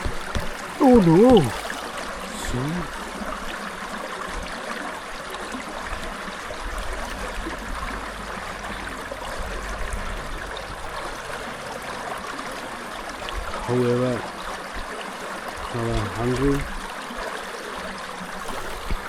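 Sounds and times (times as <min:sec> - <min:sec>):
waterfall rushing: 0:00.0 - 0:03.3.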